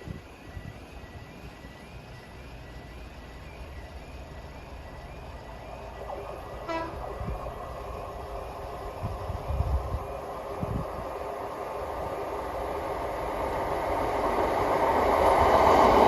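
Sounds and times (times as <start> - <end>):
diesel locomotive rumble: 0.0 - 16.0
train horn toot: 6.6 - 7.0.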